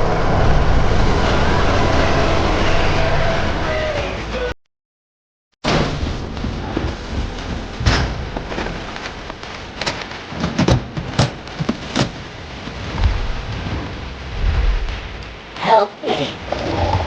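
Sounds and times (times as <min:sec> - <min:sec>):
hissing rumble: 0:00.0 - 0:04.5, 0:05.7 - 0:17.0
sharp cracks or thuds: 0:05.6 - 0:15.6.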